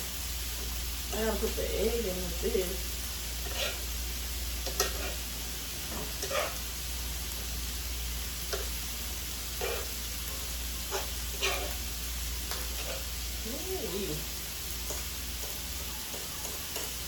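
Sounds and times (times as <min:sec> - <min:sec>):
food sizzling on a griddle: 0:00.0 - 0:17.0
utensil scraping a griddle: 0:03.4 - 0:04.0, 0:04.6 - 0:06.7, 0:09.5 - 0:10.1, 0:10.8 - 0:11.9, 0:12.5 - 0:13.2.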